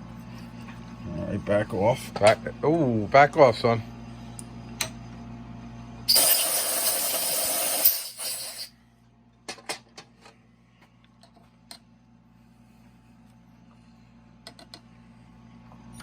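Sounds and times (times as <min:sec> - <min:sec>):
compressed air gun hissing: 0:06.1 - 0:08.7.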